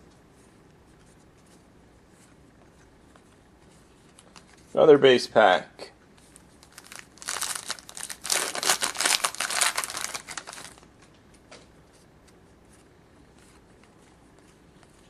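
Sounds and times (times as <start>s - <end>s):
wrapper tearing and crinkling: 6.6s - 10.9s.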